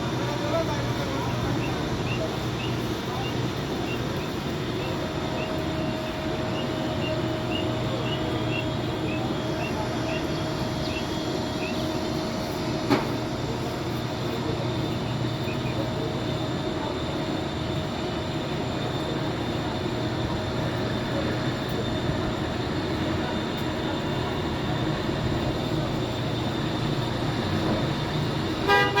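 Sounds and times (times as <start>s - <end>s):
low mechanical rumble: 0.0s - 16.9s
faint hum: 0.0s - 28.8s.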